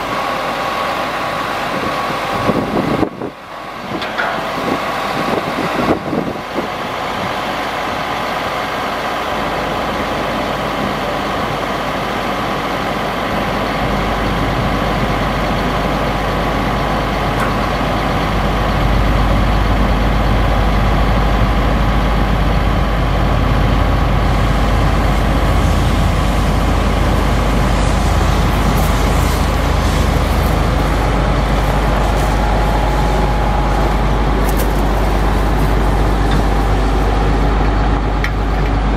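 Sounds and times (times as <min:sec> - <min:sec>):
truck engine rumbling: 0:00.0 - 0:38.9.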